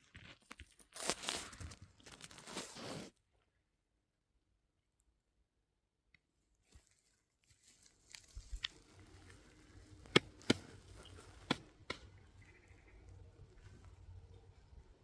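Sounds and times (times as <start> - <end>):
faint low rumble: 8.3 - 15.0.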